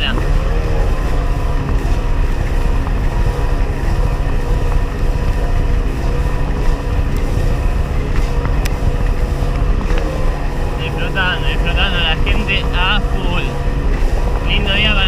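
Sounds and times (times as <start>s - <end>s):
watercraft engine running: 0.0s - 15.0s
wind buffeting microphone: 0.0s - 15.0s.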